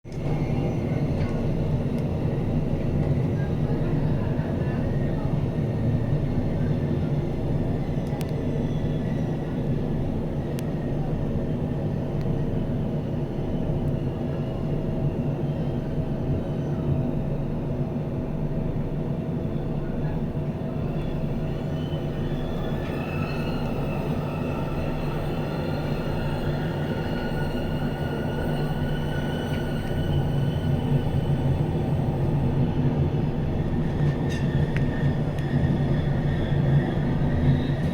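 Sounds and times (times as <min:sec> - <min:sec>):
train wheels rumbling on track: 0:00.1 - 0:37.9
faint high wheel squeal: 0:20.8 - 0:32.6.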